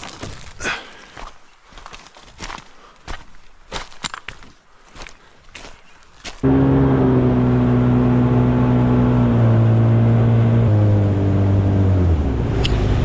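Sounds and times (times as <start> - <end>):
engine slowing down: 6.4 - 13.0.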